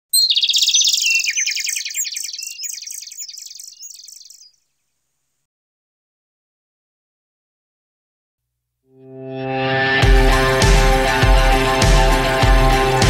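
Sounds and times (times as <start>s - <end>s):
small bird twittering: 0.1s - 5.0s.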